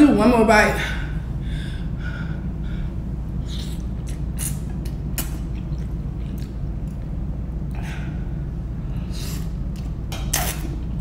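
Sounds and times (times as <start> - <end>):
low hum: 0.0 - 11.0
person chewing noodles: 3.4 - 7.7.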